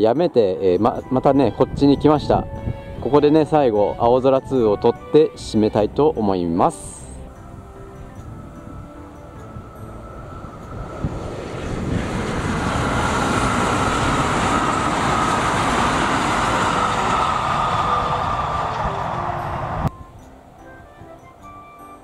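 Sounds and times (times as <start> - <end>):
steady high whine: 6.5 - 20.9
train wheels rumbling on rails: 7.5 - 19.9.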